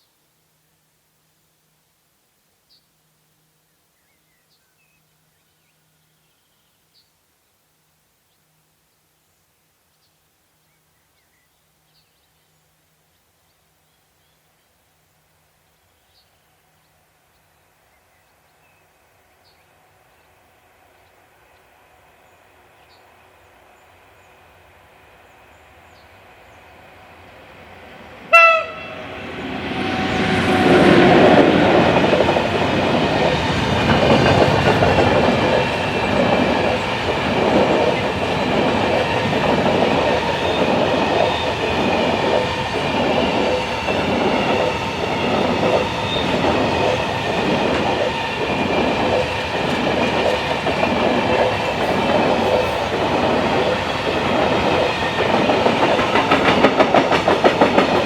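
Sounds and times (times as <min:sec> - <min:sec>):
freight train passing: 0:19.9 - 0:58.0.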